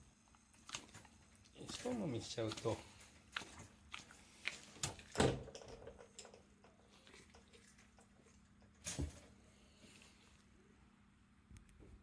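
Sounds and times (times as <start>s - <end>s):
dog chewing with mouth clicks: 0.4s - 5.2s.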